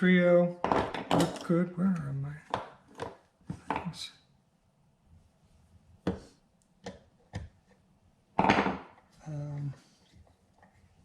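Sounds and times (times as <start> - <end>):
tools knocking on workbench: 0.6 - 1.4, 8.4 - 9.0
tools clattering: 0.6 - 1.6.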